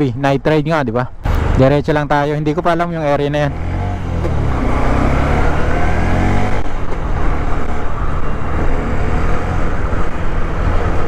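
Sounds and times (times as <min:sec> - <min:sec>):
motorcycle engine accelerating: 0:03.3 - 0:11.0.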